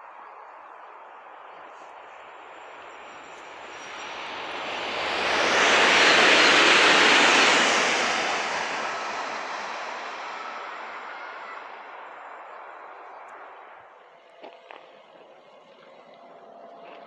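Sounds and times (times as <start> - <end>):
train passing at speed: 0.6 - 17.0.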